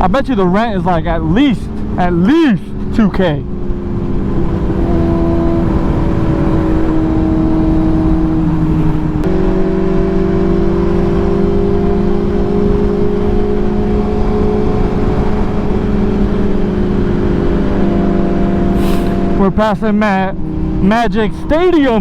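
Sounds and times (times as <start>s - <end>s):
motorcycle engine running: 0.7s - 22.0s
wind rumble on microphone: 2.7s - 19.4s.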